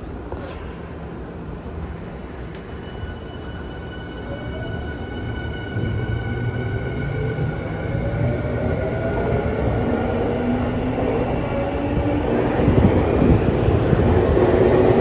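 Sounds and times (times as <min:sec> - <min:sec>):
train running noise: 0:00.0 - 0:15.0
train inverter high tones: 0:02.6 - 0:09.2.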